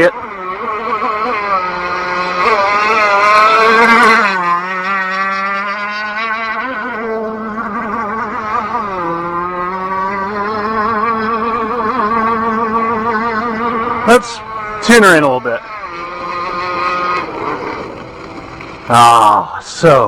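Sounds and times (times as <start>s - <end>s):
model boat engine running: 0.0s - 20.0s.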